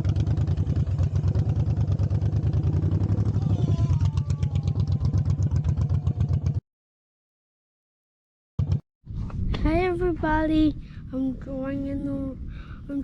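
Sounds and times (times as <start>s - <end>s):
motorcycle engine idling: 0.0s - 6.6s.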